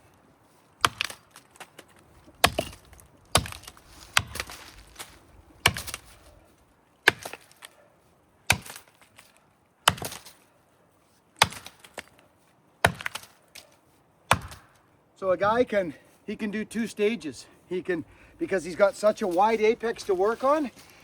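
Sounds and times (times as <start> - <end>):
axe chopping tree trunk: 0.8 - 6.3, 7.0 - 7.7, 8.5 - 10.4, 11.4 - 12.1, 12.8 - 13.6, 14.3 - 14.8
wood cracking: 0.8 - 7.8, 8.5 - 10.5, 11.4 - 14.9.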